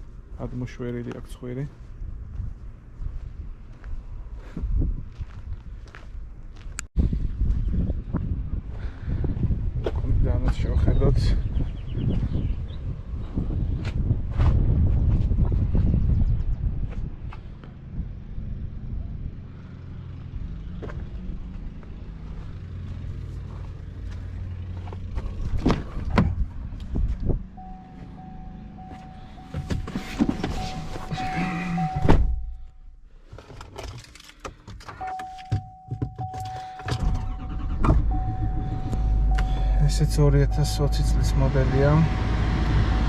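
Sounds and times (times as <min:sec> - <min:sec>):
truck warning tone: 0:27.5 - 0:32.9, 0:34.9 - 0:43.0
knocks and thunks of doors: 0:32.0 - 0:32.5
low rumble: 0:36.9 - 0:43.0.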